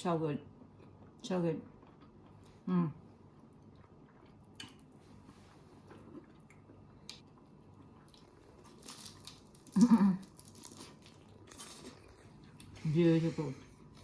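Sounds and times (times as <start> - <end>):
chewing crunchy food: 3.4 - 5.0, 5.8 - 12.8.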